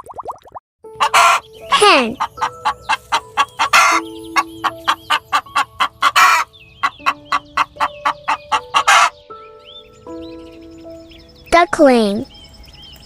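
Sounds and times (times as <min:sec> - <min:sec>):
harsh hen calls: 0:01.0 - 0:01.4, 0:02.1 - 0:09.2
hen clucking: 0:01.0 - 0:09.2.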